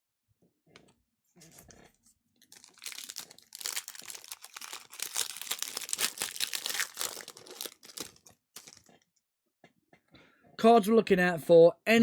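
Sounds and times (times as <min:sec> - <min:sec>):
foil wrapper crinkling and tearing: 0:02.4 - 0:09.0.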